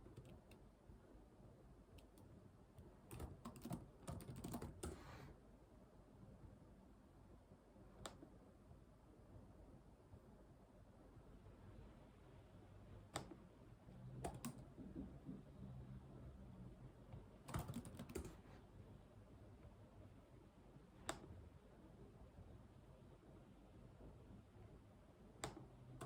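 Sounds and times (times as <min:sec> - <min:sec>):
computer keyboard keystrokes: 0:00.0 - 0:00.6, 0:02.0 - 0:05.0, 0:13.1 - 0:13.4, 0:14.2 - 0:14.7, 0:17.2 - 0:18.4, 0:25.4 - 0:26.0.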